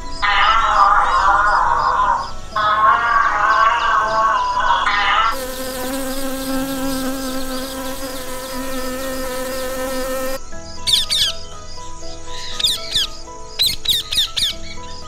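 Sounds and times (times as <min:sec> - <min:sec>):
bees buzzing: 0:05.3 - 0:10.4.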